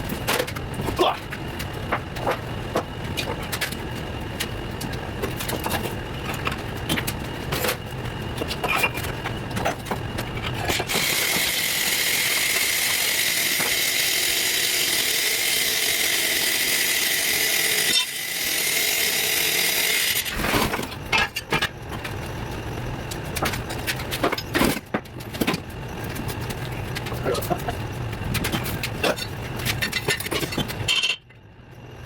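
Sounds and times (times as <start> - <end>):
power tool running: 10.7 - 20.5.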